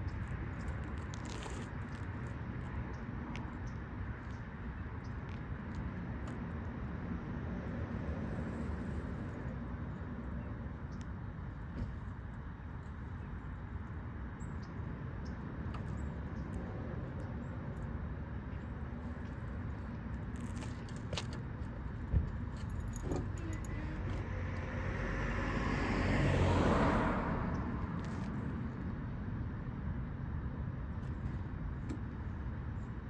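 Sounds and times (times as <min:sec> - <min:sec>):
car passing by: 0:24.2 - 0:28.4.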